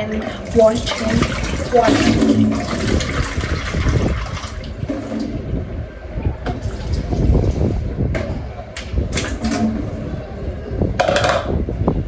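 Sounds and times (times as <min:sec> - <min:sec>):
water running from tap: 0:00.2 - 0:05.2.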